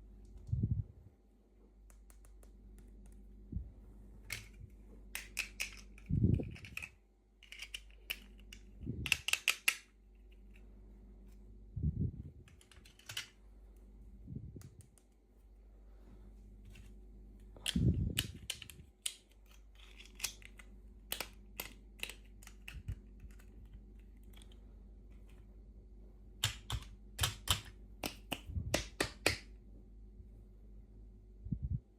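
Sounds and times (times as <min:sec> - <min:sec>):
plastic toy pieces clicking: 0:05.1 - 0:10.3, 0:12.5 - 0:13.4, 0:17.6 - 0:24.6, 0:26.4 - 0:29.4.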